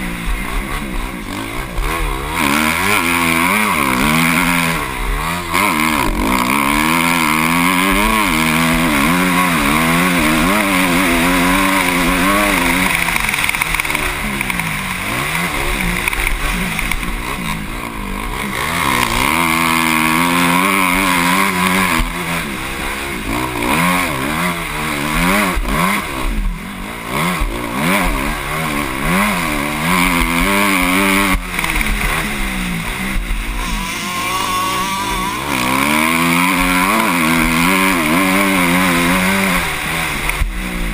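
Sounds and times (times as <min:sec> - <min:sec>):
motocross bike engine revving: 0:00.0 - 0:40.9.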